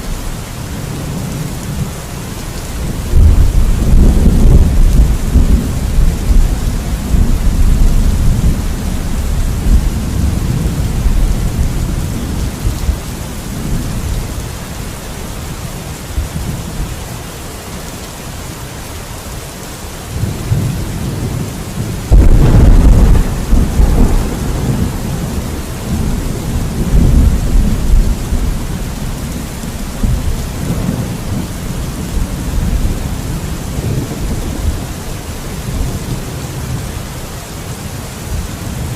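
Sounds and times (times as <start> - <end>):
steady rain: 0.0 - 38.9
thunder rumbling: 2.8 - 14.4, 20.2 - 36.9
loud thunderclap: 3.1 - 8.8, 22.0 - 34.9.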